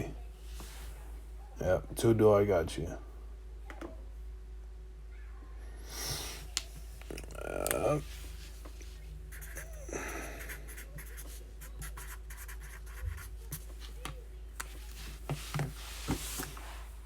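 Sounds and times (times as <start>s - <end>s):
pen scratching on paper: 9.3s - 9.8s, 10.4s - 13.7s.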